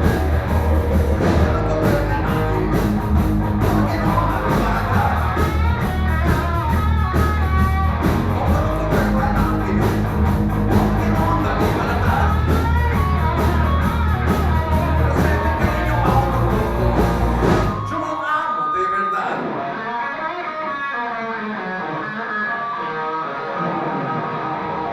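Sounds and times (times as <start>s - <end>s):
person singing: 0.0s - 3.0s, 3.6s - 7.2s, 8.0s - 19.8s
rock band playing: 0.0s - 24.9s.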